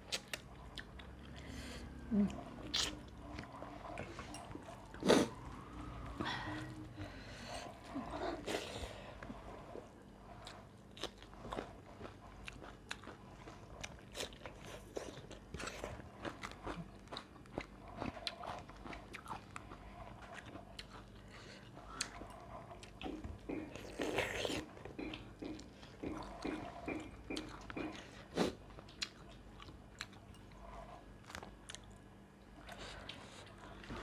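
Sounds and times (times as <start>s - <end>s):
person chewing crunchy food: 0.0s - 5.6s, 7.6s - 34.0s.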